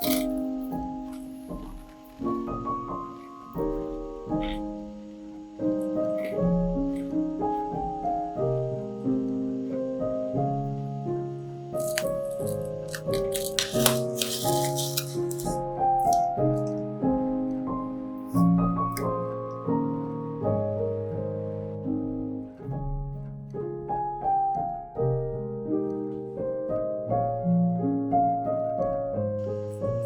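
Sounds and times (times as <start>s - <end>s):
gentle piano music: 0.0s - 30.0s.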